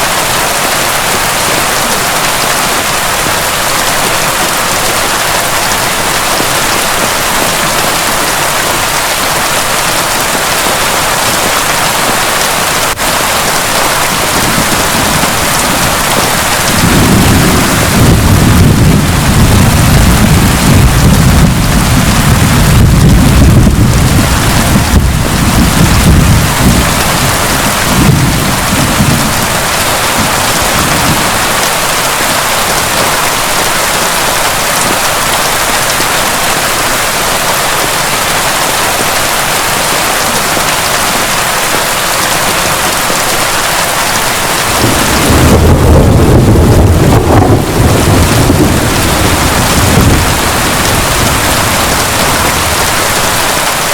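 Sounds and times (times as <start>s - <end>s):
heavy rain: 0.0s - 53.9s
rolling thunder: 12.8s - 33.5s, 44.4s - 53.9s.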